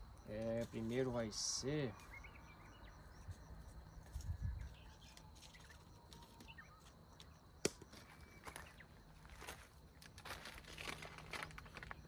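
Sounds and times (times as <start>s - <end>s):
small birds chirping: 0.2s - 7.4s, 8.0s - 10.0s.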